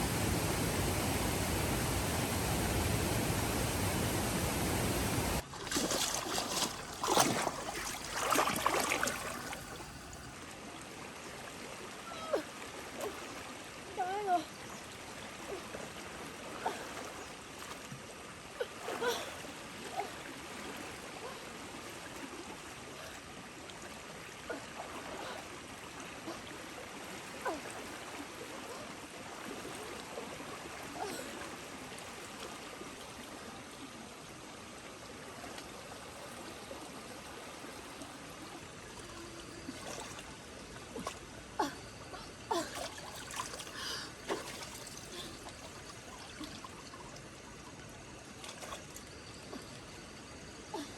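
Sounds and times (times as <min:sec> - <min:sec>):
water splashing: 0:00.0 - 0:33.4, 0:35.2 - 0:49.7
water rushing: 0:00.0 - 0:49.0.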